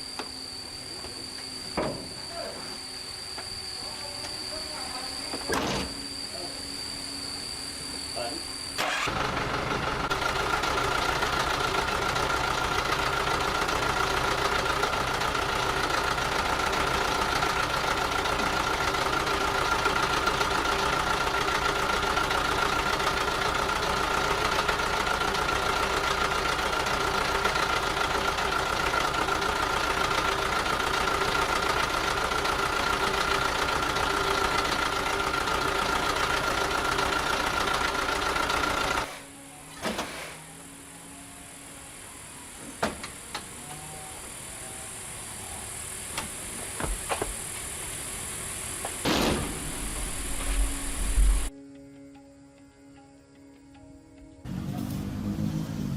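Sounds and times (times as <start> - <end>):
engine whine: 0.0 - 55.9
truck diesel engine idling: 8.8 - 39.2.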